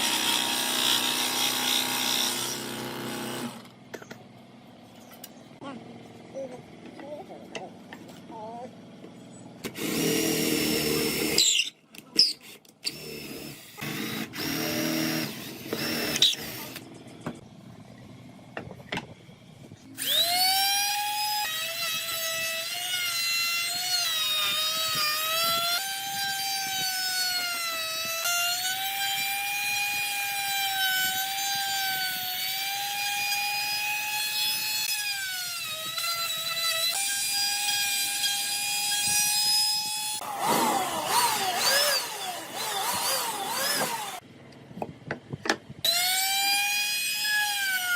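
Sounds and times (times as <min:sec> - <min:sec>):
power tool whining cutting wood: 0:00.0 - 0:03.7, 0:09.6 - 0:11.7, 0:12.3 - 0:16.8, 0:20.0 - 0:44.2, 0:45.9 - 0:47.9
noisy bursts of shop work: 0:09.6 - 0:17.4, 0:20.0 - 0:44.2.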